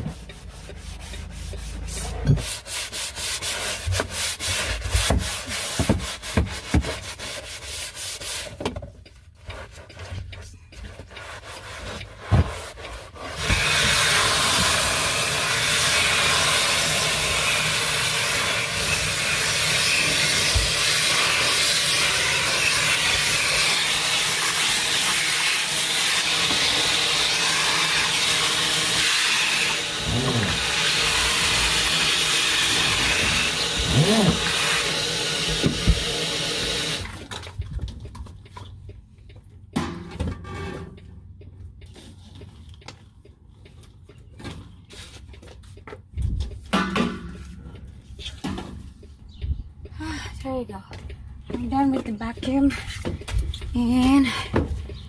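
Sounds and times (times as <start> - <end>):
brush scrubbing wet floor: 0.0 - 8.6, 30.0 - 34.8
vacuum cleaner running: 13.4 - 37.1.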